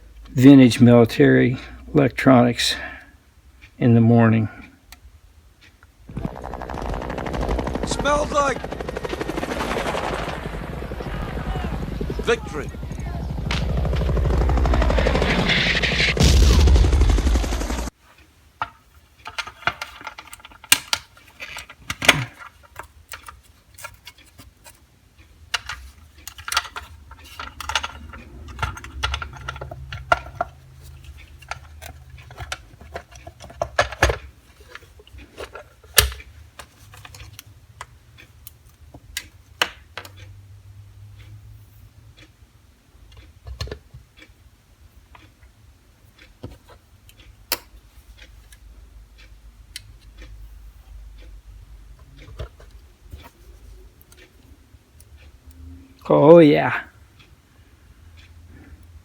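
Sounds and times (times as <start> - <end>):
loud rushing noise: 6.2 - 17.9
sharp clicks and light knocks: 18.1 - 40.3, 43.1 - 44.4, 45.1 - 50.4, 51.2 - 55.6.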